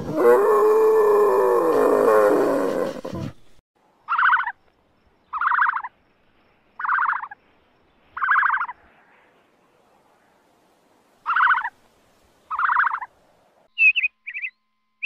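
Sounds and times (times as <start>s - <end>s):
short high peccary calls: 4.1s - 4.6s, 5.3s - 5.9s, 6.8s - 7.4s, 8.2s - 8.8s.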